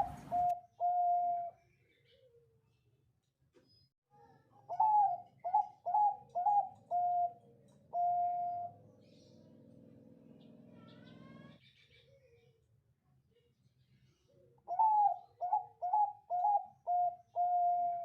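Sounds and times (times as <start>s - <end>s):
dove cooing: 0.0s - 1.5s, 4.7s - 8.8s, 14.7s - 18.0s.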